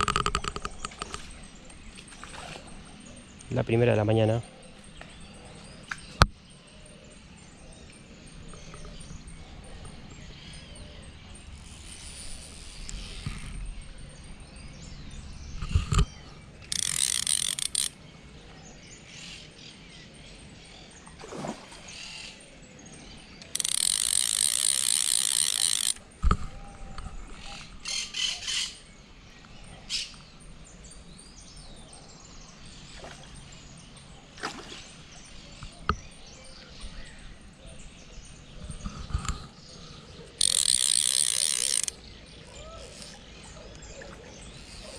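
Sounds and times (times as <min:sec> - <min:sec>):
fishing reel drag clicking: 0:00.0 - 0:02.7, 0:11.6 - 0:14.2, 0:15.6 - 0:18.0, 0:23.4 - 0:26.4, 0:40.4 - 0:43.8, 0:44.4 - 0:44.9.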